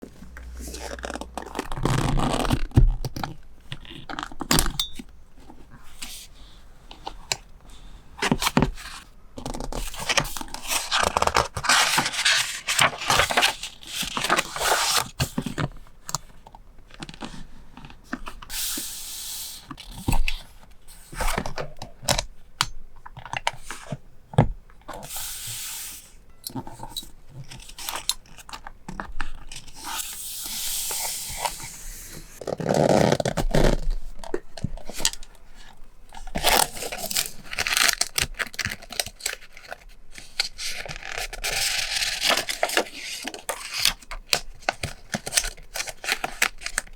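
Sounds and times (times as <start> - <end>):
paper rustling: 5.4 - 15.7.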